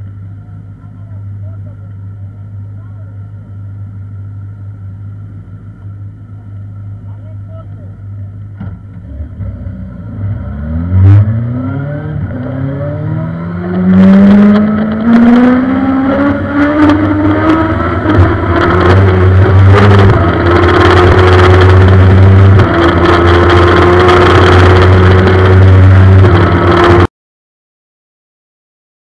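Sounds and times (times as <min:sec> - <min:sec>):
motorcycle engine at high revs: 0:08.9 - 0:27.1.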